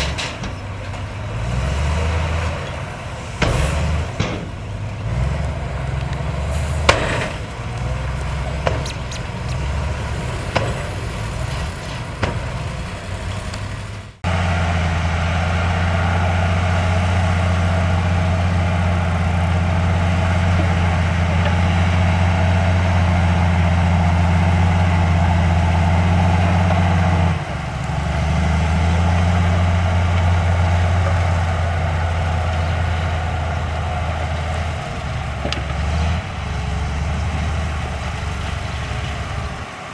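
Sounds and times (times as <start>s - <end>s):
knocks and clanks: 0.0s - 14.3s, 34.3s - 36.2s
heavy diesel machinery running: 0.0s - 39.9s.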